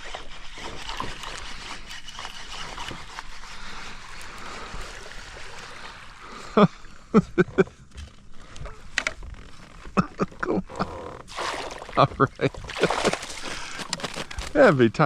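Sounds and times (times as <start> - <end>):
water splashing and churning: 0.0 - 7.6, 9.6 - 15.0
loud knocks or splashes: 11.3 - 13.4.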